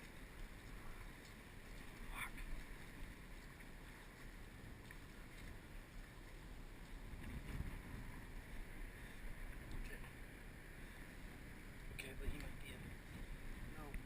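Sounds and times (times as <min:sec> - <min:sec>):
faint ticks: 0:00.0 - 0:06.1
wind rumble on microphone: 0:00.0 - 0:14.0.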